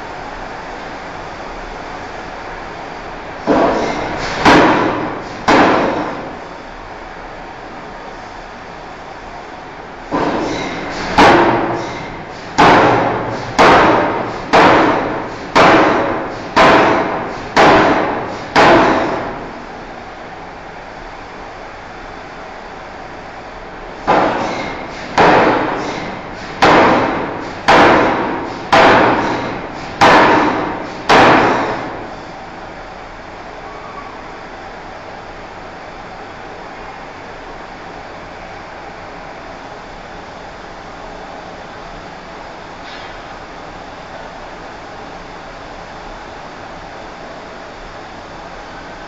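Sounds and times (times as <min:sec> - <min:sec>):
hammer striking steel bar: 0:03.5 - 0:06.2, 0:10.2 - 0:19.3, 0:24.1 - 0:31.9.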